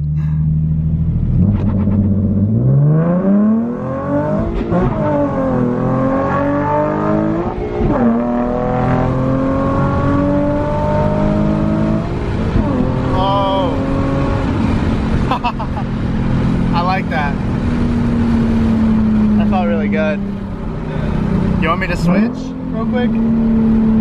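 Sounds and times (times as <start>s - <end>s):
car engine revving hard: 1.3s - 20.0s.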